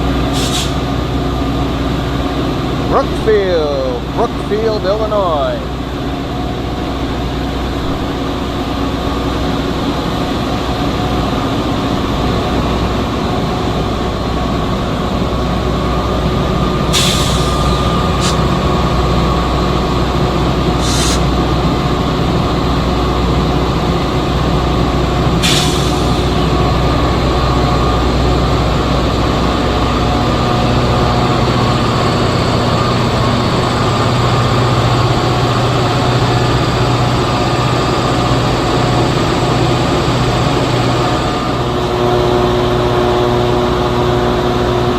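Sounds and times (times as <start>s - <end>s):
train rumbling past: 0.0s - 44.9s
short sharp hissing: 0.4s - 0.9s, 16.9s - 18.4s, 20.8s - 21.3s, 25.4s - 26.3s.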